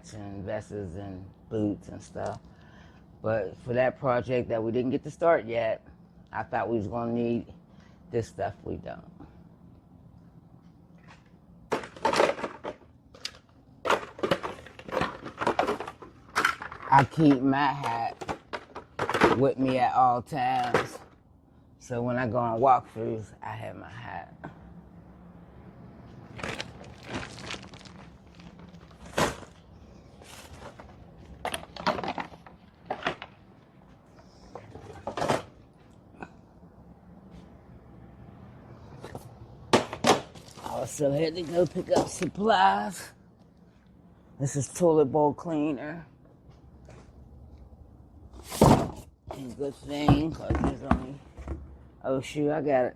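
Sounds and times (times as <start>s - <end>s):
faint steady hum: 0.0s - 52.9s
gear rustling: 26.2s - 31.8s.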